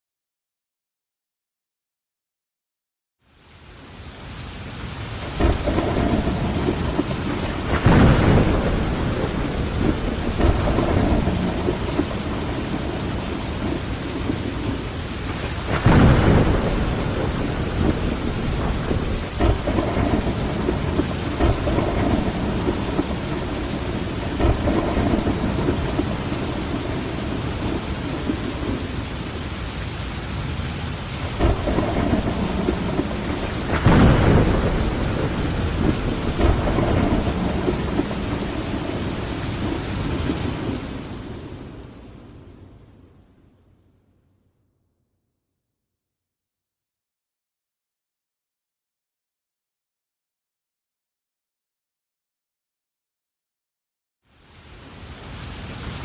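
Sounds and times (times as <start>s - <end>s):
rain against a window: 3.2s - 43.2s, 54.3s - 56.0s
thunder rumbling: 4.1s - 43.2s.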